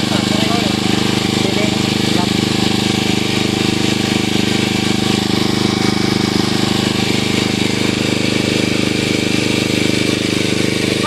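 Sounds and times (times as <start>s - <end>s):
small engine chugging: 0.0s - 11.0s.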